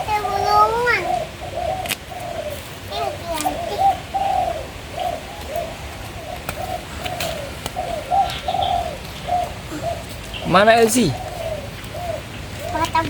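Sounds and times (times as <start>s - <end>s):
bird calling: 0.0s - 13.0s.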